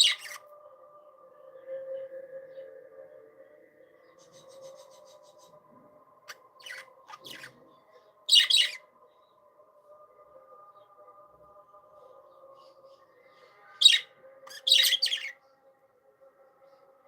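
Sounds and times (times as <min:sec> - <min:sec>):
budgerigars chirping: 0:00.0 - 0:00.4, 0:06.6 - 0:07.5, 0:08.3 - 0:08.8, 0:13.8 - 0:15.3.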